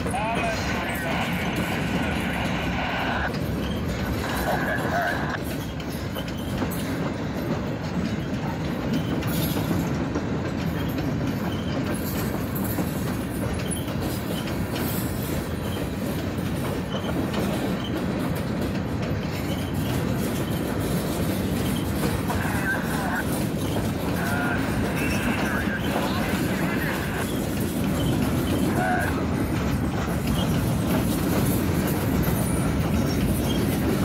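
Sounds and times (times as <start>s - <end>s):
rumble of train wheels on rail: 0.0s - 34.0s
wheels clicking over rail joints: 3.3s - 34.0s.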